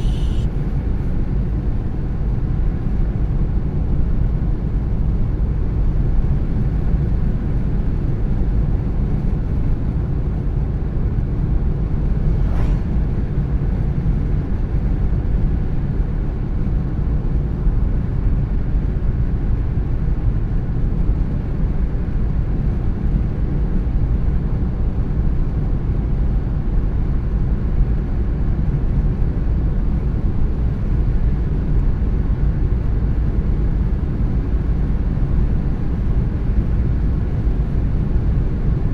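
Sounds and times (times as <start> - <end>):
car driving road noise: 0.0 - 4.8, 8.4 - 15.8.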